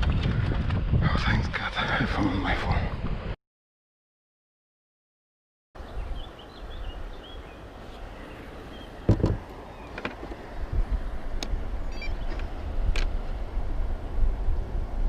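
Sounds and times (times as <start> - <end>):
wind rumbling on microphone: 0.0 - 3.4, 5.8 - 15.0
thump: 9.1 - 9.4.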